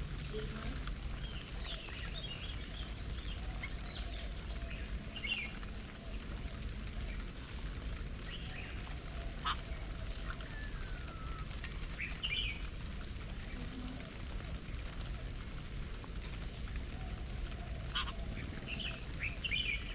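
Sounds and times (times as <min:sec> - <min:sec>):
steady low rumble: 0:00.0 - 0:10.3.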